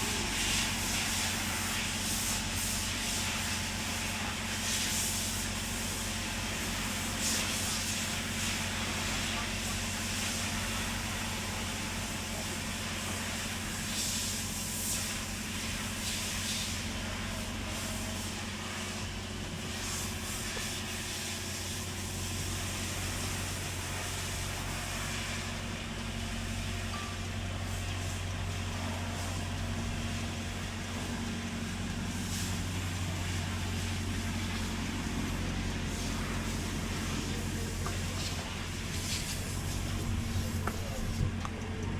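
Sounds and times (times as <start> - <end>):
constant hiss: 0.0 - 41.9
vehicle engine humming: 17.2 - 41.9.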